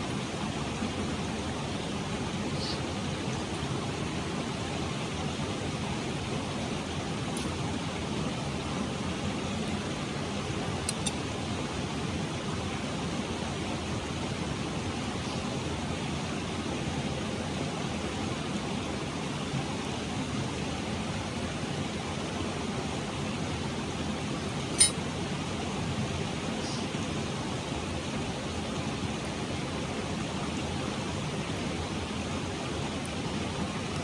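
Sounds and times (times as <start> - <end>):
mountain stream rushing: 0.0 - 34.0
small clicks: 10.9 - 11.2.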